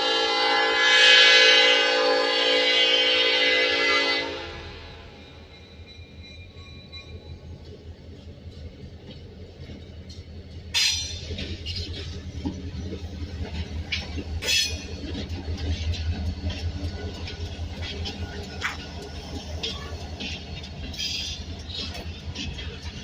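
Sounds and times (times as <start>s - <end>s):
diesel locomotive rumble: 0.0s - 23.0s
train wheels clicking and clanking: 5.1s - 23.0s.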